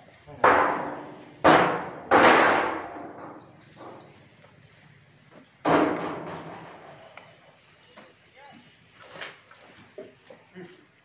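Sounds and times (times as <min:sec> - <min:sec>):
bird chirping rising notes: 0:02.7 - 0:04.3.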